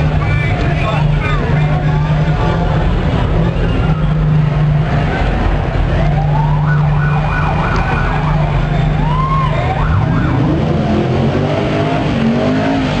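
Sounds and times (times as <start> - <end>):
race car engine idling and revving: 0.0 - 13.0
crowd whooping: 5.9 - 12.2.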